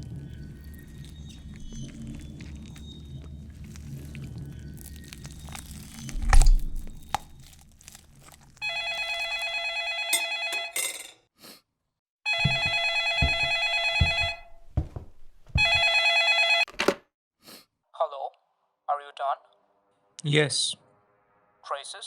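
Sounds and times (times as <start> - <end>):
telephone ringing: 8.6 - 11.1, 12.3 - 14.6, 15.6 - 16.9.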